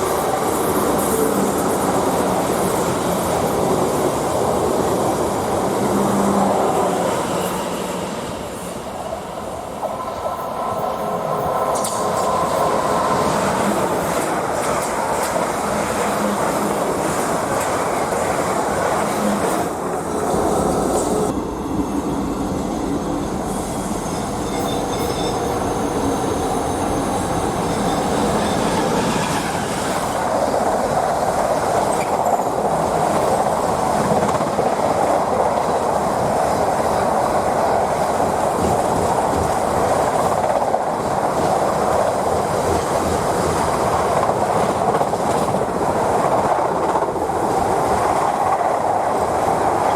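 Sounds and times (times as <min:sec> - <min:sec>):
train wheel-on-rail rumble: 0:00.0 - 0:49.9
faint high wheel squeal: 0:24.0 - 0:29.2.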